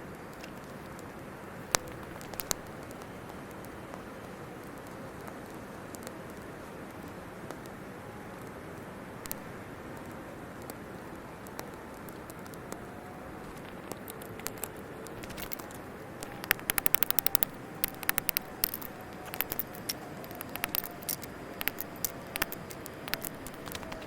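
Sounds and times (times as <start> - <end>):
wood fire crackling and popping: 0.2 - 7.8, 8.4 - 24.0.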